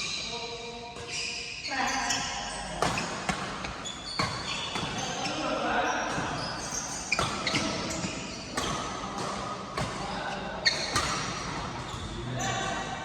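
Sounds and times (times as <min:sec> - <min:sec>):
shoes squeaking on court: 0:01.0 - 0:12.7
rackets hitting shuttlecock: 0:02.8 - 0:05.5, 0:06.1 - 0:12.0.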